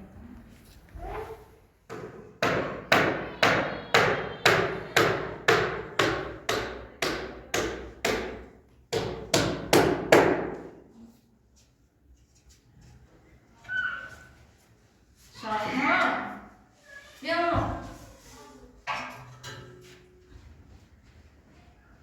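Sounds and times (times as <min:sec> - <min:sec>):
hammer blows ringing: 0:02.4 - 0:08.4.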